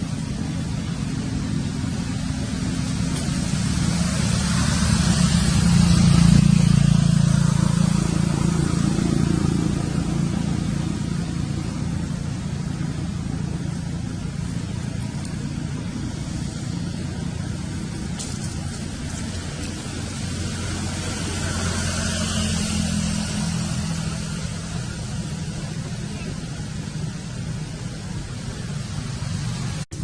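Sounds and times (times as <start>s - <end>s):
vehicle engine passing by: 0.0s - 30.0s.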